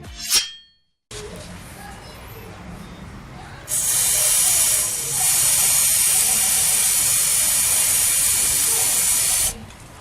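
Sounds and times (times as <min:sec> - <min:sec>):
aerosol can spraying: 0:03.7 - 0:09.6.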